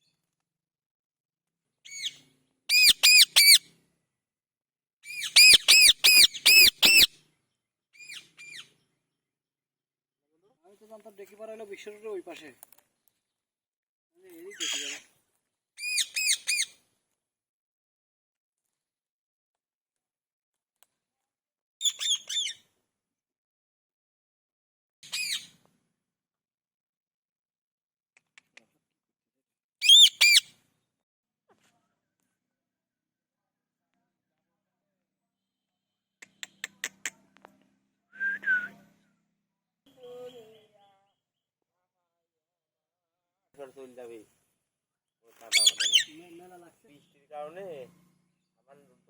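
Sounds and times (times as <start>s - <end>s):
parrot squawking: 2.7s - 3.6s, 5.2s - 7.1s, 29.8s - 30.4s, 45.5s - 46.1s.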